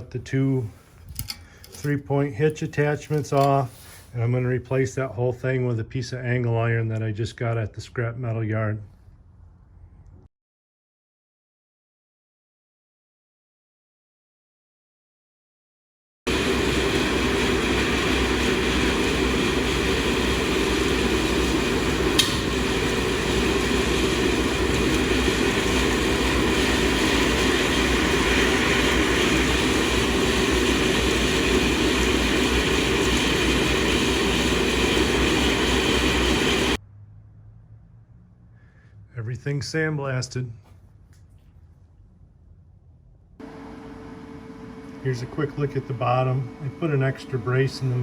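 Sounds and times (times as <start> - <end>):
sandblaster hissing: 16.3 - 36.8
short click: 22.2 - 22.4.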